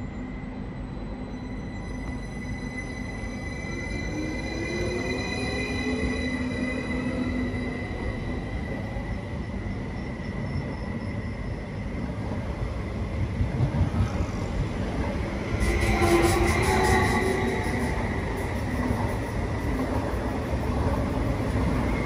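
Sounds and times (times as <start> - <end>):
train rumbling on rails: 0.0 - 22.0
train whine: 0.0 - 22.0
high wheel squeal: 15.5 - 22.0.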